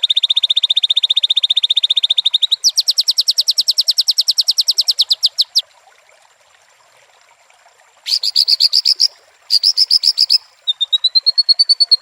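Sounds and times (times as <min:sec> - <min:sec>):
bird singing a fast trill: 0:00.0 - 0:05.6, 0:08.1 - 0:12.0
faint steady hiss: 0:00.0 - 0:12.0.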